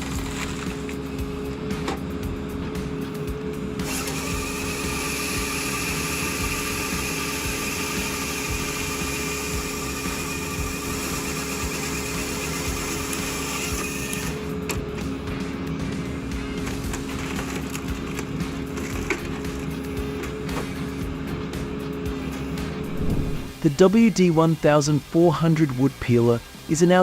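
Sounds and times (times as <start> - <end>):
woodworking machine whirring: 2.9 - 15.0
steady low hum: 21.3 - 23.8.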